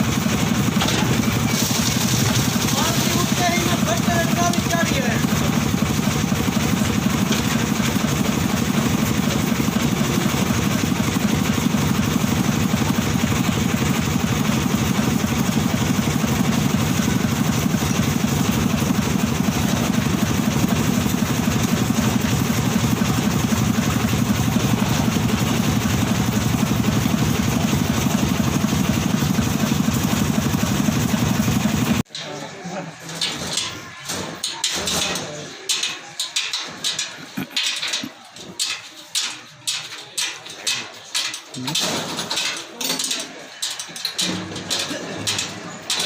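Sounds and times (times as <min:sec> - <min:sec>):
engine running with throb: 0:00.0 - 0:32.1.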